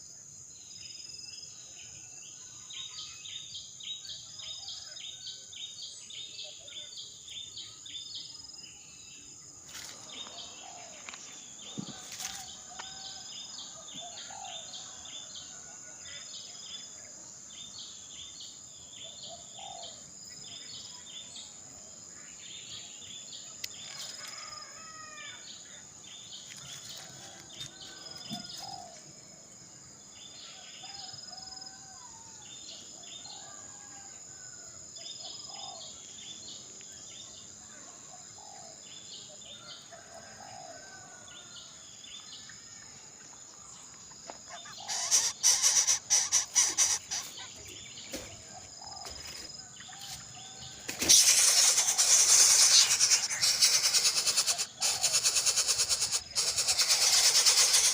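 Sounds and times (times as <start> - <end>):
insect whine: 0.0 - 57.9
birds chirping: 43.5 - 57.9.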